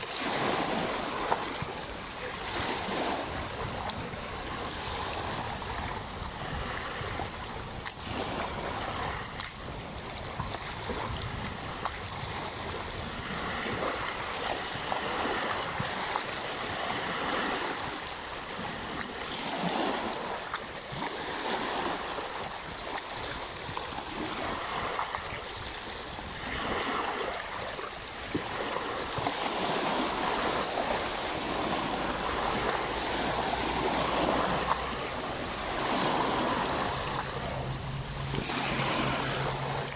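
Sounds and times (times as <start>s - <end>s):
waves lapping at shore: 0.0s - 39.9s
low wind rumble: 0.2s - 18.0s, 28.1s - 39.9s.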